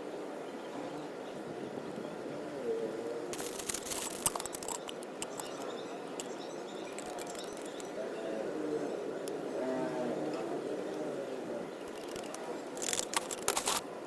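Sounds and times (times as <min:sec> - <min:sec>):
light clicks and rattles: 0:03.4 - 0:08.0, 0:11.8 - 0:13.9.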